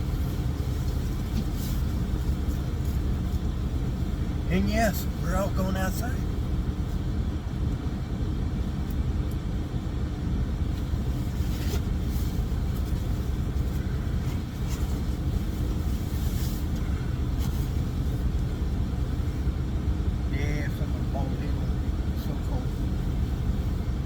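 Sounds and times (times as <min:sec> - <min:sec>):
truck diesel engine idling: 0:00.0 - 0:24.0
light rustles and clicks: 0:00.7 - 0:03.5.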